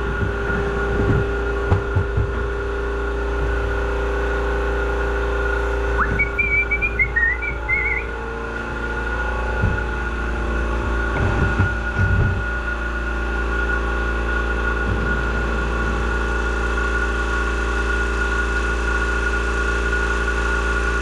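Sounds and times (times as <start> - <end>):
lawn mower engine idling: 0.0 - 19.6.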